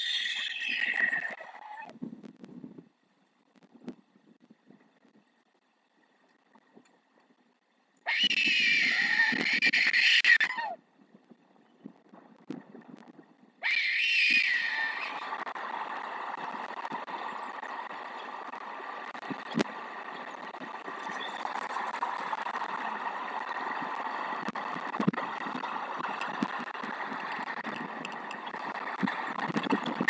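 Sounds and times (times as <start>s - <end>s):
wind noise on microphone: 0.7s - 5.3s, 8.2s - 13.6s, 15.2s - 30.0s
faint knocks and ticks: 1.9s - 8.0s, 16.4s - 30.0s.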